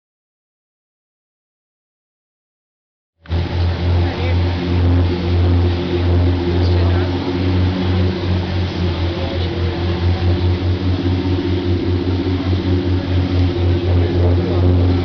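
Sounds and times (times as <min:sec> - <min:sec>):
large engine droning: 0:03.2 - 0:15.0.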